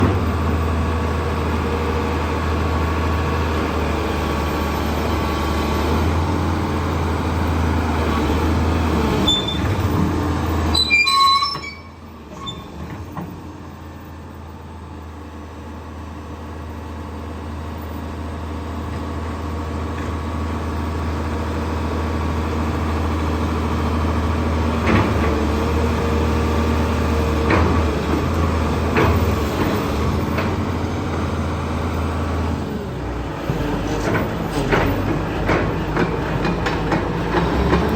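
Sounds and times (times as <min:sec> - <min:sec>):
excavator diesel engine running: 0:00.0 - 0:37.9
high metallic squeals: 0:09.2 - 0:09.7, 0:10.7 - 0:12.8.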